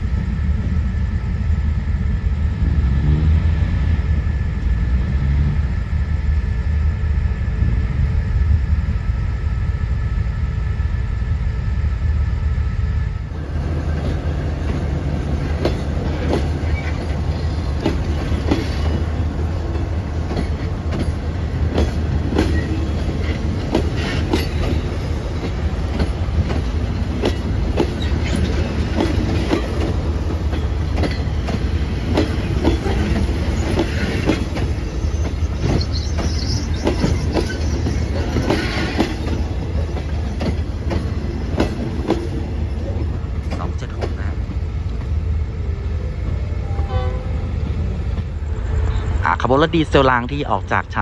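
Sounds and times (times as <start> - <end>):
train wheels clacking over rail joints: 13.9 - 44.3
wheel squeals: 16.5 - 17.5, 32.4 - 40.5.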